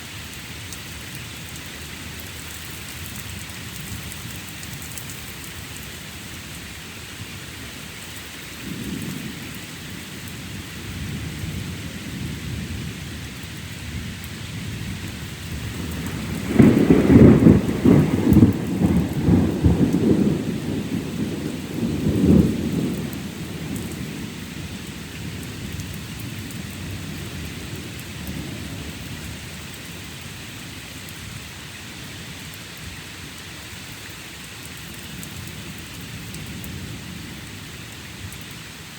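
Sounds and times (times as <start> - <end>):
steady rain: 0.0 - 38.9
thunder rumbling: 8.6 - 29.8.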